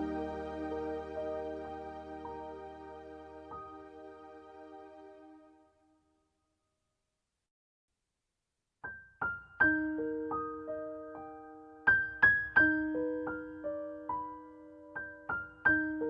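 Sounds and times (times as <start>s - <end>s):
slow piano piece: 0.0s - 5.5s, 9.3s - 16.0s.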